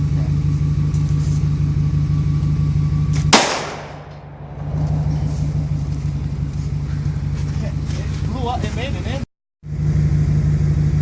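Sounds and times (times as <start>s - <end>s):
engine-like drone: 0.0s - 11.0s
firework bang: 3.2s - 5.8s.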